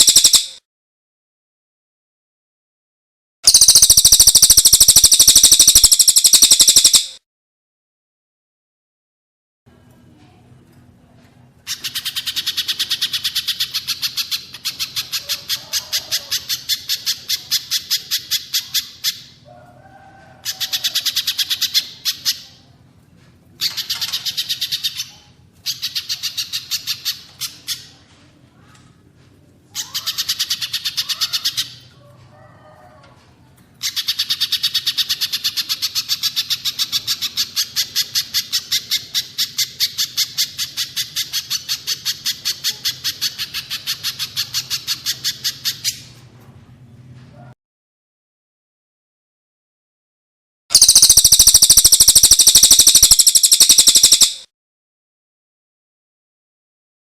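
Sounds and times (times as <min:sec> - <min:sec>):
songbird rapid high notes: 0:03.5 - 0:07.2, 0:50.7 - 0:54.4
softer lower bird calls: 0:50.7 - 0:54.5.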